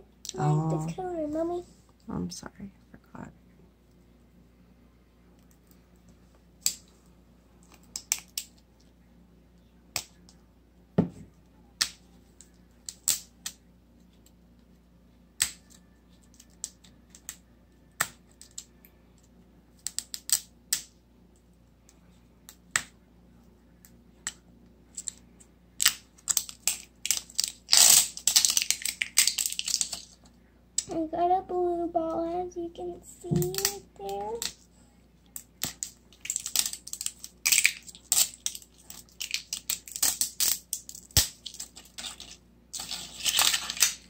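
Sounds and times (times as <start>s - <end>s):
plastic wrapping crackling: 25.8s - 30.2s, 35.4s - 44.0s.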